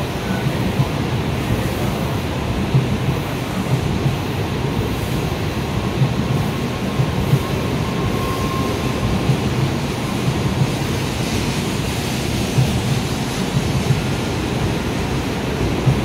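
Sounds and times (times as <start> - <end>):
train wheels rumbling: 0.0 - 16.0
rushing hiss: 3.0 - 16.0.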